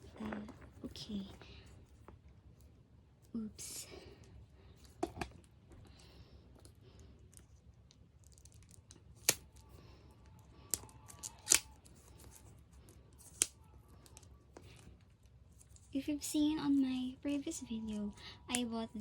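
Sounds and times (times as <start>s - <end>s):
packaging being cut and torn: 11.1s - 11.8s.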